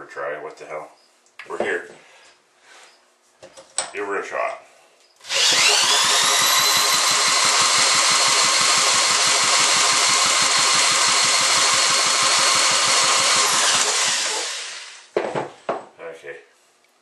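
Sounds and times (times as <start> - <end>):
electric drill whining: 5.2 - 15.1.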